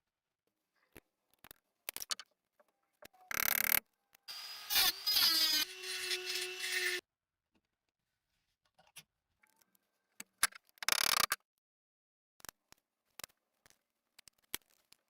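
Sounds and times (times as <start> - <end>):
small power tool humming: 4.3 - 7.0.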